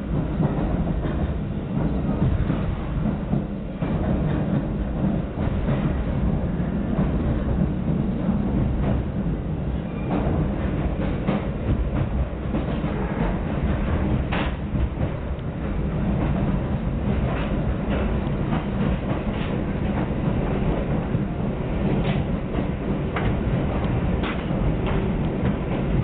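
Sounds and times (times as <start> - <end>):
rumble of wheels on rails: 0.0 - 26.0
wheels clicking over rail joints: 21.8 - 26.0.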